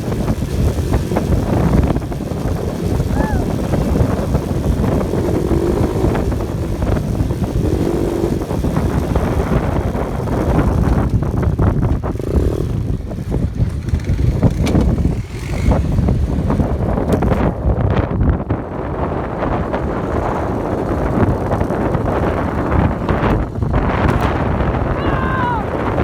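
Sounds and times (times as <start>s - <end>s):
vehicle engine and tyres rumbling: 0.0s - 26.0s
wind buffeting microphone: 0.0s - 26.0s.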